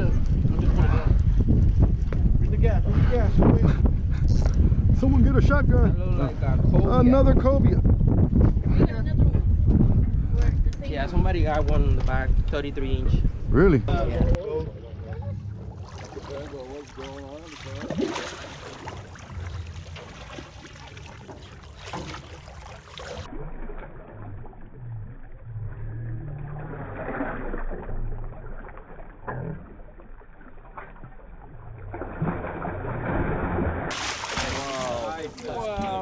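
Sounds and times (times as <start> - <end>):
wind: 0.0 - 36.0
boat engine hum: 13.9 - 36.0.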